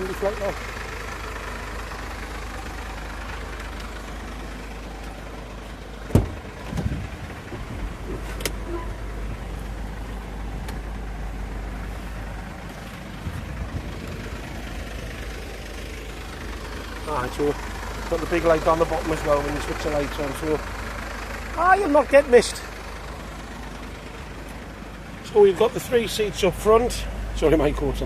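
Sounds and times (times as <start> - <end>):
truck engine idling: 0.0 - 28.0
light thumps: 6.1 - 8.6.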